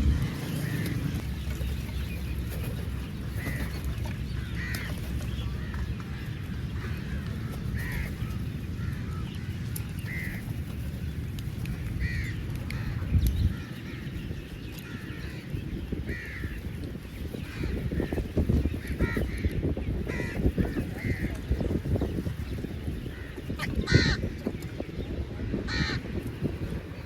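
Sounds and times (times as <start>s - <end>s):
low background rumble: 0.0s - 27.0s
crows cawing: 4.4s - 5.0s, 5.6s - 10.5s, 12.0s - 14.0s, 16.1s - 16.6s, 18.8s - 19.5s, 20.1s - 21.3s, 23.1s - 24.3s, 25.7s - 26.0s.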